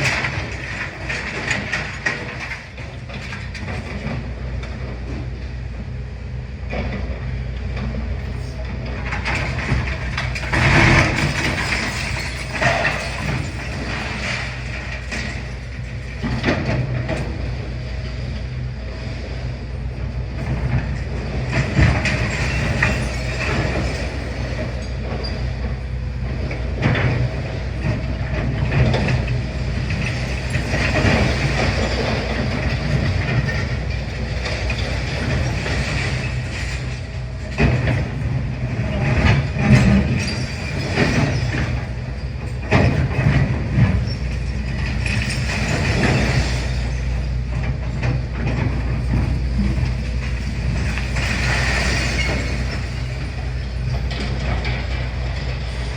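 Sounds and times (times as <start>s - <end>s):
excavator diesel engine running: 0.0s - 55.9s
metal and masonry clanking: 9.2s - 17.4s, 26.8s - 55.9s.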